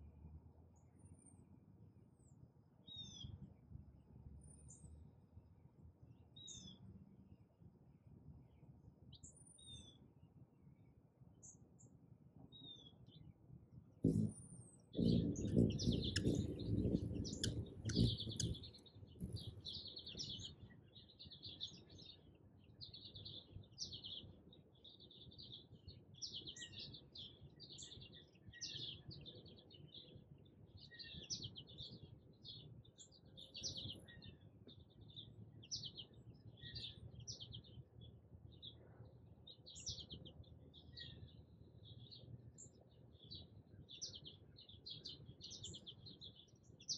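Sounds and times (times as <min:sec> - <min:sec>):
small birds chirping: 0:14.0 - 0:46.9.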